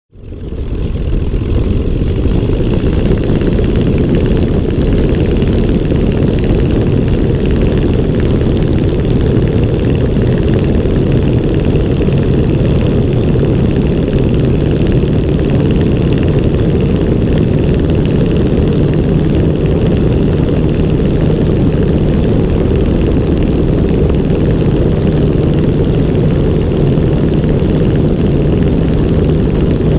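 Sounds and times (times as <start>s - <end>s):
aircraft engine and propeller drone: 0.1s - 29.9s
low hum: 0.1s - 29.9s.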